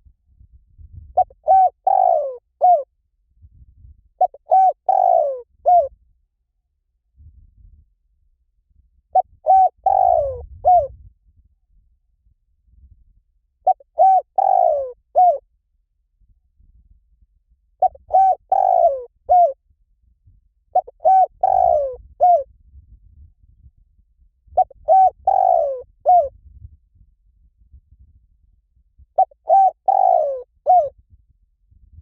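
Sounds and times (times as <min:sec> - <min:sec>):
dove cooing: 0:01.2 - 0:02.9, 0:04.2 - 0:05.9, 0:09.2 - 0:10.9, 0:13.7 - 0:15.4, 0:17.8 - 0:19.6, 0:20.8 - 0:22.5, 0:24.6 - 0:26.3, 0:29.2 - 0:30.9.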